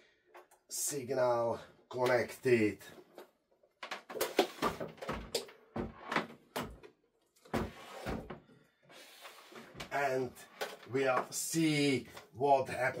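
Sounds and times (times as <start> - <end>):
cables and plugs clattering: 2.9 - 7.5, 9.7 - 11.4.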